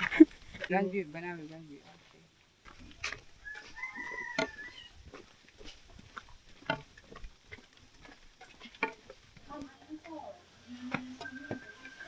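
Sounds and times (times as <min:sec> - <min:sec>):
walking stick tapping: 0:00.0 - 0:00.8, 0:02.6 - 0:10.2, 0:10.8 - 0:12.0
footsteps on a trail: 0:00.0 - 0:12.0.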